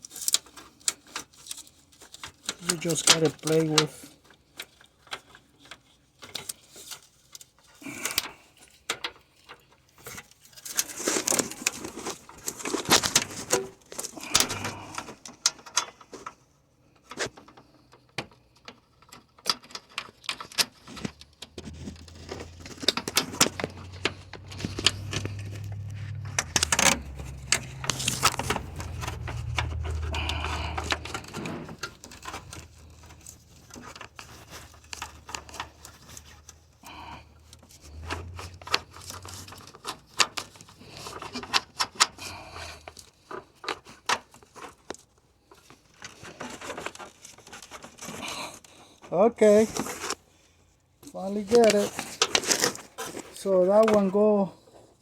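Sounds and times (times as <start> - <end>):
low hum: 21.8 - 33.0.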